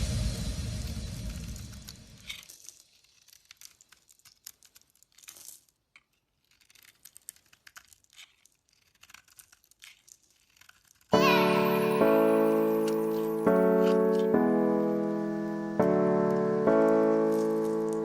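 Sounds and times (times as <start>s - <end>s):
music: 0.0s - 2.2s, 11.2s - 18.0s
blade cutting dry soap: 5.2s - 11.1s.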